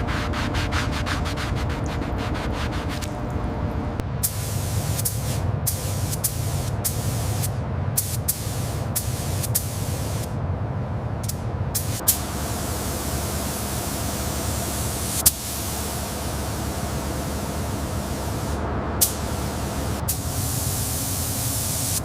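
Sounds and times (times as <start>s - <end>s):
steady low hum: 0.0s - 22.0s
pressurised spray hissing: 4.2s - 10.3s, 11.8s - 22.0s.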